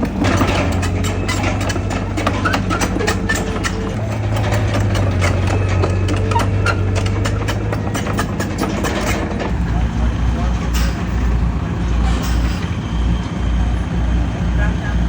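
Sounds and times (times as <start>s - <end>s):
clicks and knocks: 0.0s - 9.7s
heavy diesel engine running: 0.0s - 15.0s.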